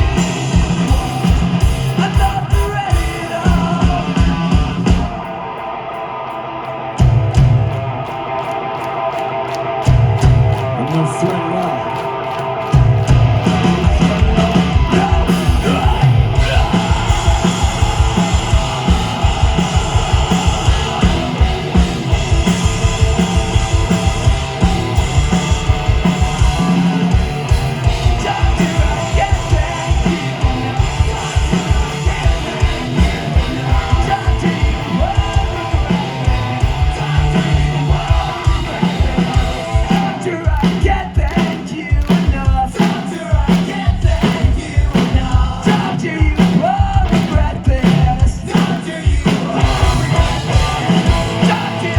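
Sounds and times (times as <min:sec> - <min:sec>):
fast pounding drums: 0:00.0 - 0:05.4, 0:07.0 - 0:08.9, 0:09.8 - 0:51.9
distorted electric guitars: 0:00.0 - 0:51.9
person yelling and singing: 0:13.5 - 0:21.8, 0:26.0 - 0:51.9.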